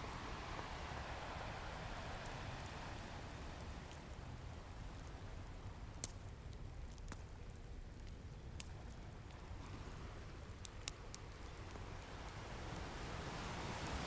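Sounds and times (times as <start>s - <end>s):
ocean surf rumble: 0.0s - 3.9s, 12.2s - 14.0s.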